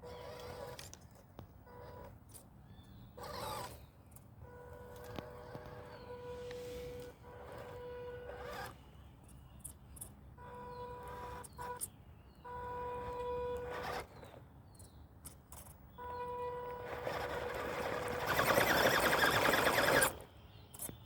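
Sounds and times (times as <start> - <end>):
small electric motor whining: 0.0 - 1.0, 3.2 - 3.9, 4.7 - 8.8, 10.4 - 11.9, 12.5 - 14.4, 15.5 - 21.0.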